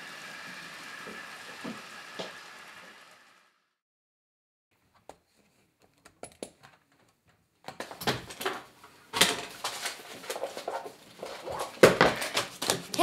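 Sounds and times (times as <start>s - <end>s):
papers rustling: 7.7s - 13.0s.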